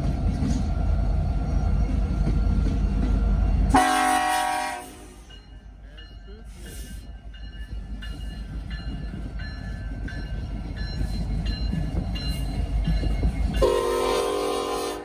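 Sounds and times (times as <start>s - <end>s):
freight train rumble: 0.0s - 15.0s
locomotive horn chord: 3.7s - 5.2s, 13.6s - 15.0s.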